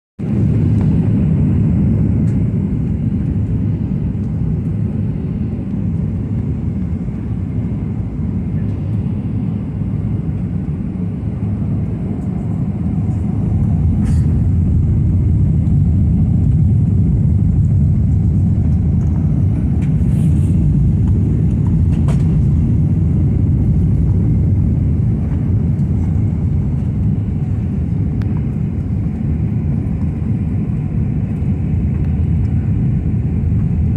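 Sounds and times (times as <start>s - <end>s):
low rumble of engines and airflow: 0.2s - 33.9s.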